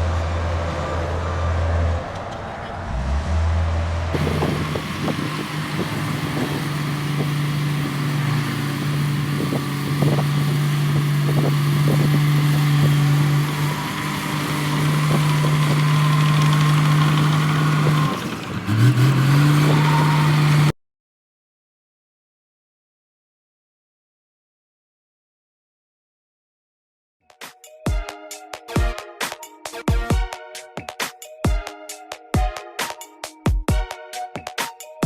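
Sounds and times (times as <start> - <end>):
heavy diesel engine running: 0.0 - 20.7.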